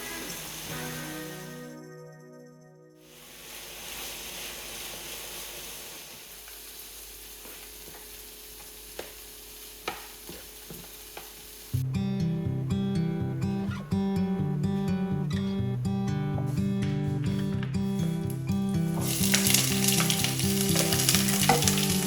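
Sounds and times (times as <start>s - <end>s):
food sizzling in a pan: 0.0s - 1.7s, 3.0s - 11.8s, 18.9s - 22.0s
acoustic guitar music: 0.0s - 3.0s, 11.7s - 22.0s
utensil clinking against pan: 19.0s - 22.0s.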